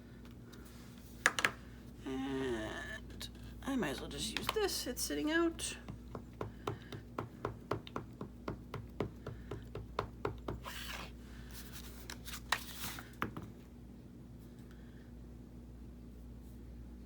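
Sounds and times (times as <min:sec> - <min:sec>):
paper rustling: 0:10.6 - 0:13.2.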